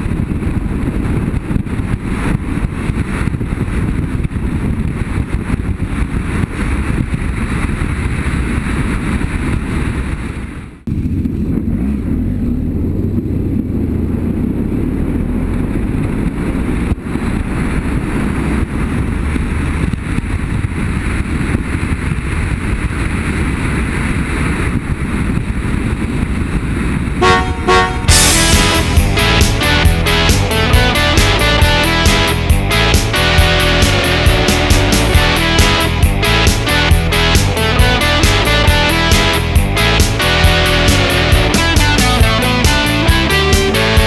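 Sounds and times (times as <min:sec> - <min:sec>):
motorcycle engine rumbling: 0:10.9 - 0:19.2, 0:27.2 - 0:44.0.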